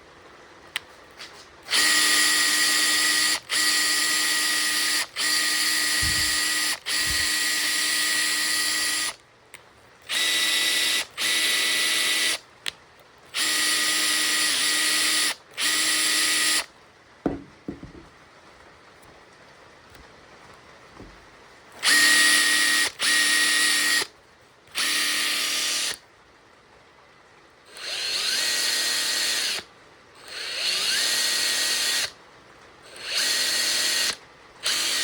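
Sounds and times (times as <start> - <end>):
cordless impact driver motor running: 1.7 - 9.2, 10.1 - 12.4, 13.4 - 16.7, 21.8 - 24.1, 24.7 - 26.0, 27.8 - 32.1, 32.9 - 35.0.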